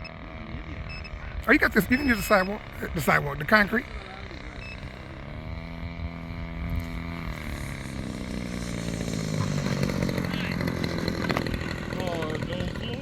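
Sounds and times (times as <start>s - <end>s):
model airplane engine running: 0.0s - 13.0s.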